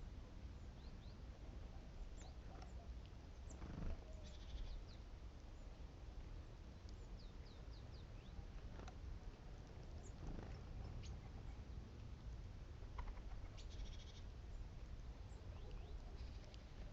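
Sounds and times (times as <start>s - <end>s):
great tits chirping: 2.1s - 5.8s, 6.8s - 8.8s, 13.6s - 16.9s.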